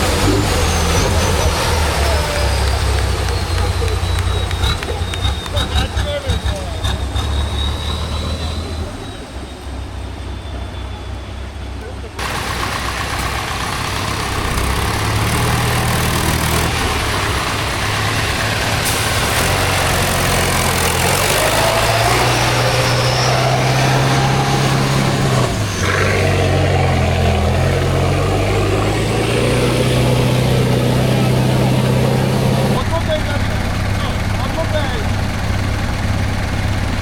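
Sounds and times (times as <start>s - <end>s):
truck engine working hard: 0.0s - 37.0s.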